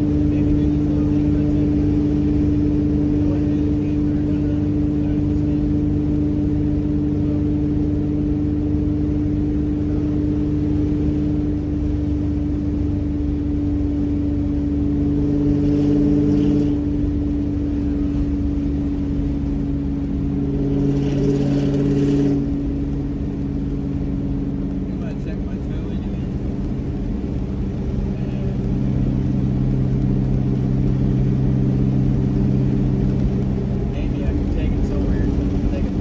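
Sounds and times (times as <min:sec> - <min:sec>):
pickup truck engine droning: 0:00.0 - 0:36.0.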